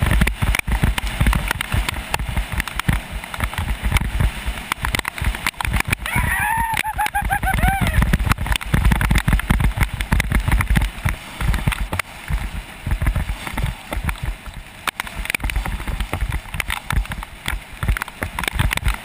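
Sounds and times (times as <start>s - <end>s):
bike clicks and knocks: 0.0s - 6.0s
wind buffeting microphone: 0.0s - 19.0s.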